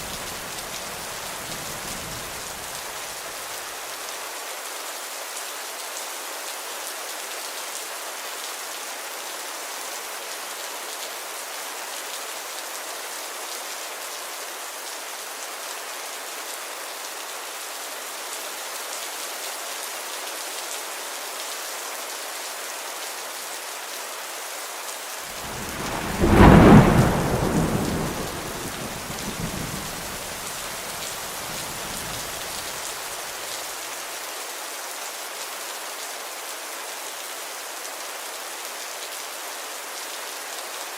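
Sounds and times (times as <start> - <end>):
steady rain: 0.0 - 40.9
thunder clap: 25.4 - 32.7.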